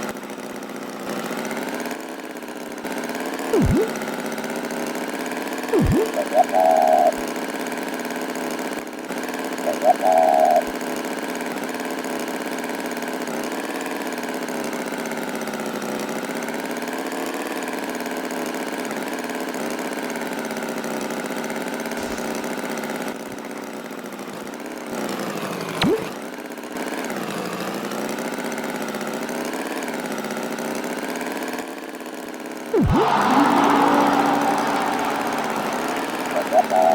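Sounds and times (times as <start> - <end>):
tractor engine running: 3.5 - 4.4, 32.7 - 36.9.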